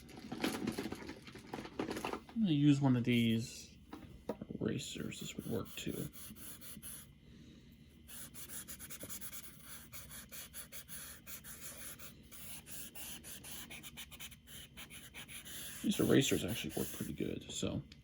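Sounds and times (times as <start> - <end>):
eraser scrubbing on paper: 5.1 - 7.1, 8.1 - 17.3.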